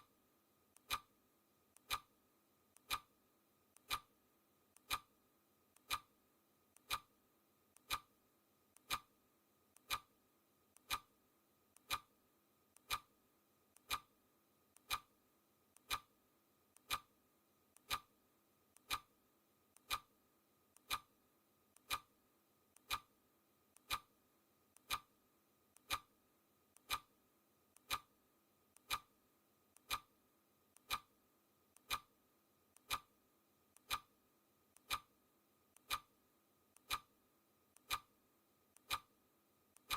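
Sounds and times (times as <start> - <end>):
clock ticking: 0.7 - 1.1, 1.7 - 2.1, 2.7 - 3.1, 3.7 - 4.1, 4.7 - 5.1, 5.7 - 6.1, 6.7 - 7.1, 7.7 - 8.1, 8.7 - 9.1, 9.7 - 11.1, 11.7 - 12.1, 12.7 - 13.1, 13.7 - 14.1, 14.7 - 15.1, 15.7 - 16.1, 16.7 - 17.1, 17.7 - 18.1, 18.7 - 19.1, 19.7 - 20.1, 20.7 - 22.1, 22.7 - 33.2, 33.8 - 39.2.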